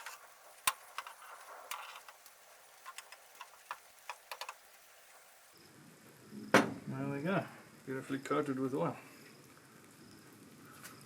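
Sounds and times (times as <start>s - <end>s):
sharp clicks and ticks: 0.0s - 4.6s.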